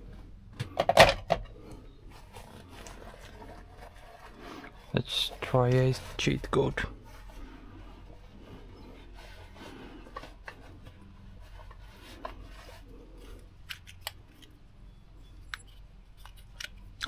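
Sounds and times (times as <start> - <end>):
low steady hum: 0.0 - 17.0
tools and wire clicking: 13.6 - 14.6, 15.4 - 17.0.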